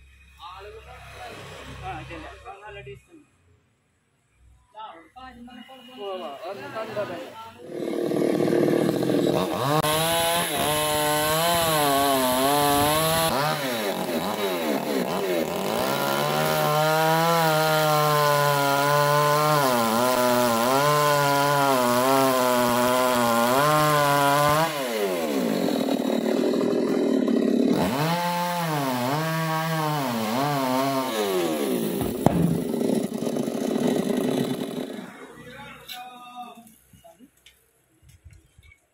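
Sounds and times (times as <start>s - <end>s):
chainsaw revving: 6.8s - 35.4s.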